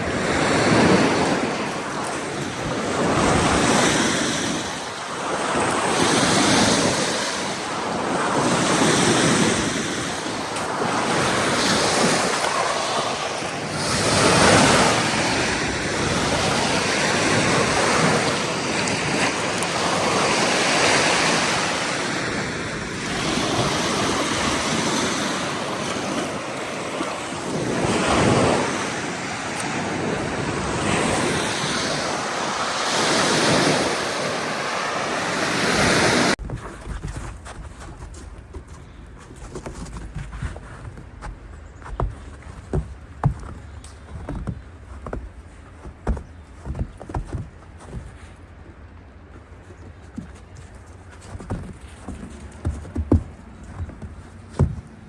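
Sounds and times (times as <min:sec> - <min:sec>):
ocean surf breaking: 0:00.0 - 0:36.4
wind on microphone: 0:00.0 - 0:38.0.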